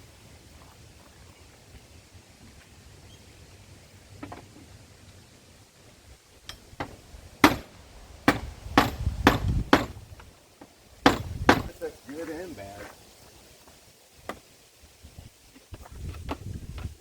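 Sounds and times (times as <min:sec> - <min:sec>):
loud knocking blows: 0:06.8 - 0:10.1, 0:11.0 - 0:11.8.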